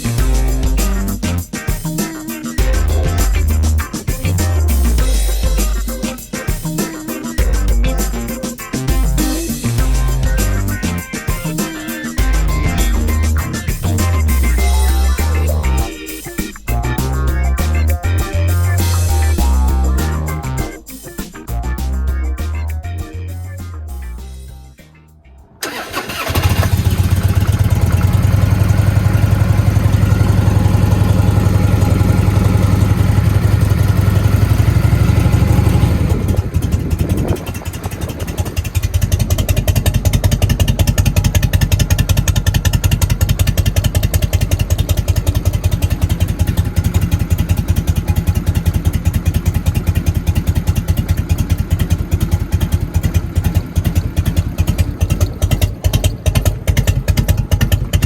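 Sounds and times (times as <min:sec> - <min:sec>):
motorcycle engine idling: 0:25.6 - 0:58.0.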